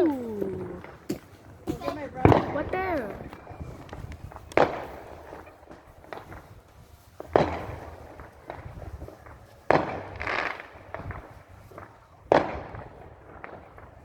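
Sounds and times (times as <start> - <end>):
fireworks bangs: 0.0 - 6.5
small fireworks pops: 0.0 - 14.0.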